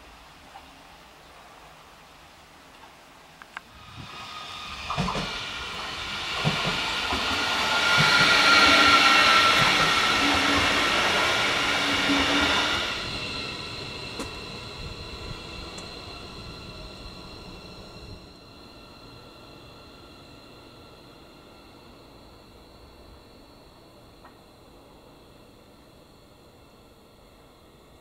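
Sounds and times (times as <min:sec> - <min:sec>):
wheels hissing on rails: 0:00.0 - 0:25.7
train wheels knocking over joints: 0:04.8 - 0:16.4.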